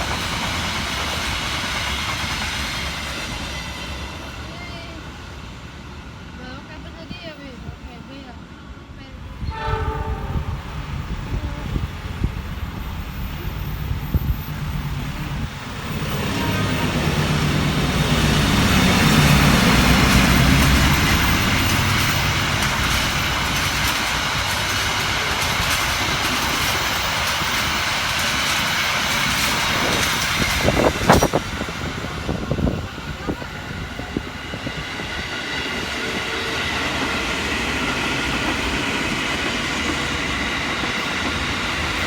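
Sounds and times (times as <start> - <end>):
steel wheels rushing on rails: 0.0 - 42.0
locomotive engine passing: 9.2 - 42.0
sharp knocks of train: 9.5 - 42.0.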